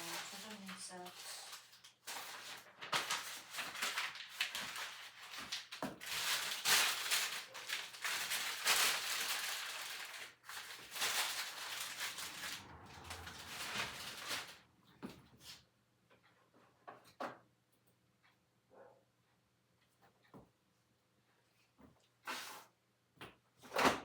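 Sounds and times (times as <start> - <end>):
rustling and crinkling of handling: 0.0 - 15.6.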